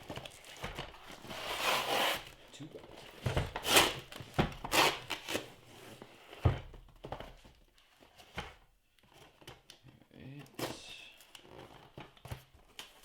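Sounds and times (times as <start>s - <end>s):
cardboard boxes knocking and rustling: 0.0s - 2.3s, 2.9s - 9.6s.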